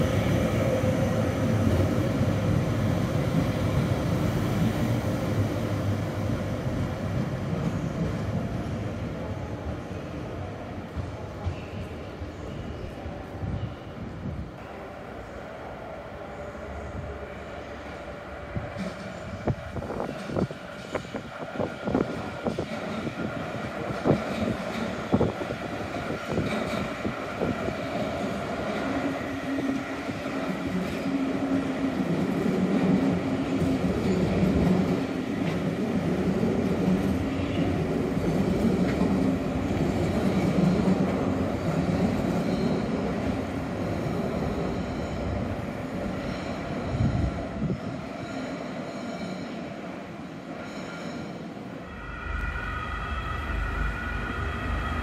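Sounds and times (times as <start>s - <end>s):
train wheels on rails: 17.7s - 55.0s.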